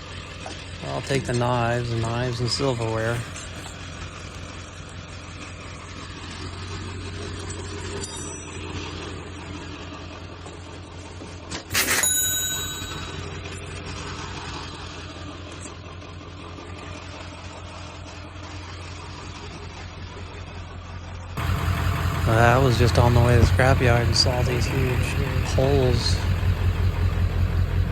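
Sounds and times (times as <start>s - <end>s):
vehicle engine idling: 0.0s - 11.6s, 12.5s - 27.9s
light metallic clinks: 7.5s - 8.9s
loud ringing metal clang: 11.7s - 13.6s.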